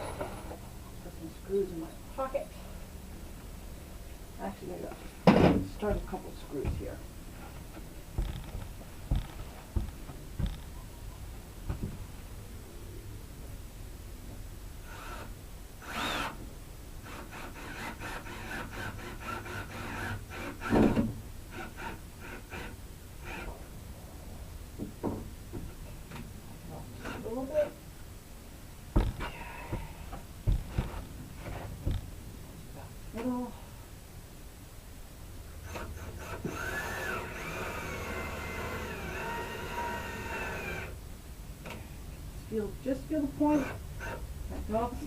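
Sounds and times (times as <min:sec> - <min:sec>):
knocks: 0:08.2 - 0:10.7, 0:11.6 - 0:12.0, 0:28.9 - 0:31.0
screws scraping into wood: 0:14.9 - 0:16.4, 0:17.0 - 0:23.5, 0:35.6 - 0:41.0.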